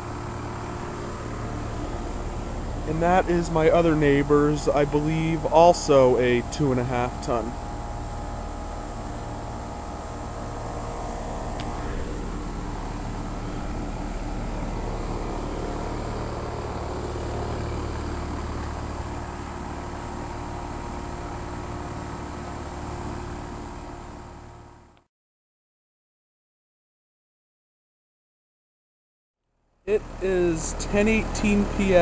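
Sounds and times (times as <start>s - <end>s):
fans whooshing: 0.0s - 6.4s
compressor hum: 0.0s - 25.0s, 29.9s - 32.0s.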